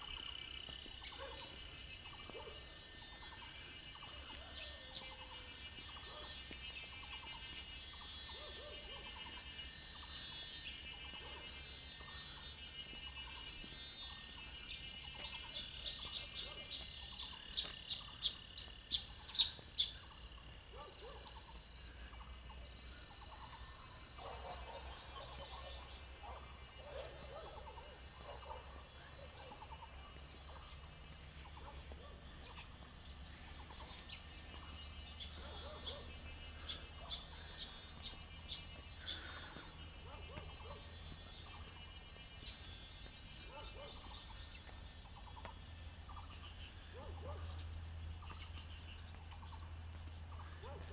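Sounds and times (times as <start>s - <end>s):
birds chirping: 0.0s - 50.9s
insects droning: 0.0s - 50.9s.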